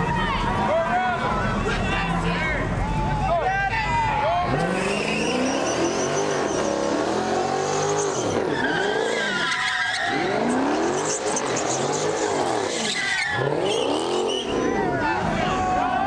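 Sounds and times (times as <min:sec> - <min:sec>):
tires squealing: 0:00.0 - 0:16.0
car engine revving: 0:04.3 - 0:16.0.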